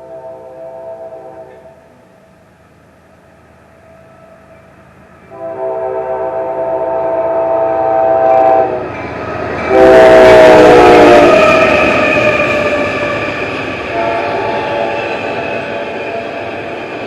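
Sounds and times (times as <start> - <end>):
locomotive air horn blasts: 0.0 - 2.0, 5.3 - 8.9, 9.6 - 11.8, 13.9 - 16.5
locomotive engine and wheel noise: 1.5 - 5.4, 8.7 - 9.9, 10.7 - 17.0.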